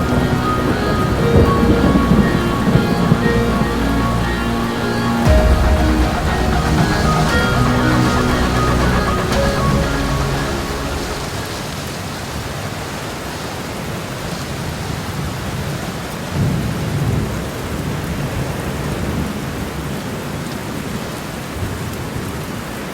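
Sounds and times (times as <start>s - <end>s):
low roll of thunder: 0.0s - 11.9s
steady rain: 0.0s - 22.9s.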